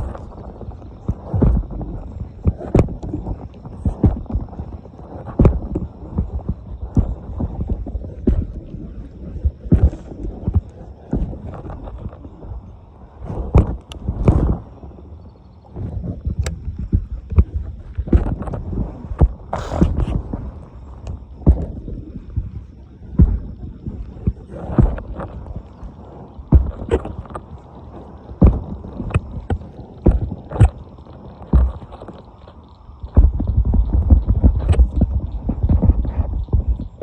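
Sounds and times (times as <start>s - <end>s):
footsteps: 16.9s - 23.4s.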